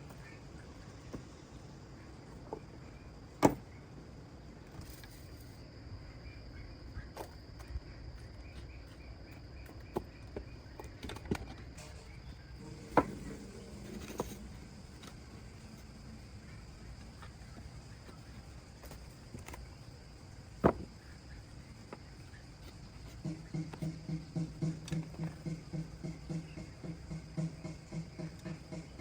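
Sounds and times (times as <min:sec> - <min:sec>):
crickets droning: 0:00.0 - 0:29.0
wooden blocks knocking: 0:20.6 - 0:21.0, 0:22.9 - 0:29.0.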